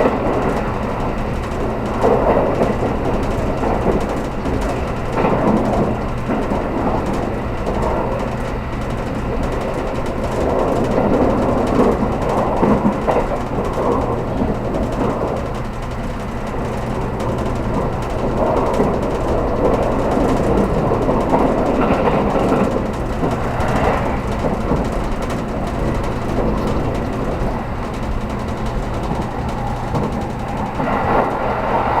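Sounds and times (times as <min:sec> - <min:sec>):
train cabin rumble: 0:00.0 - 0:32.0
low hum: 0:16.3 - 0:32.0.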